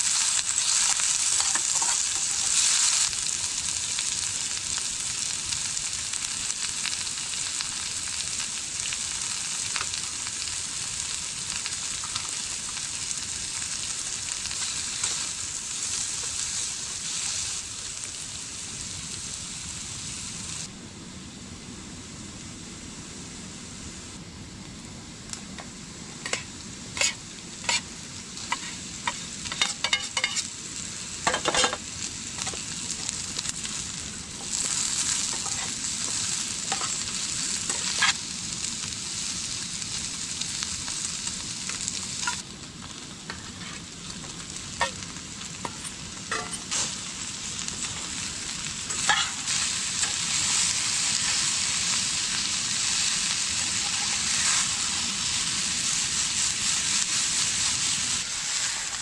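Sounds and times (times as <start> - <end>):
food sizzling in a pan: 0.0 - 59.0
metal spoon clinking against pan: 29.5 - 30.4.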